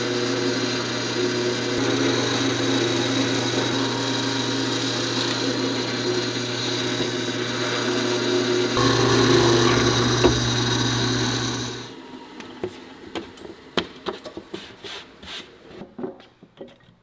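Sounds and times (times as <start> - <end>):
power tool working wood: 0.0 - 12.0.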